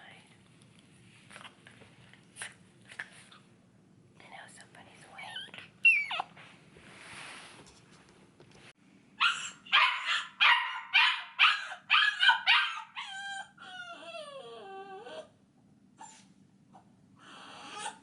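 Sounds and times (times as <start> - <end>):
puppy whining: 5.2 - 6.4, 9.2 - 15.4, 16.0 - 18.0
puppy yipping: 5.3 - 6.4, 9.2 - 15.3.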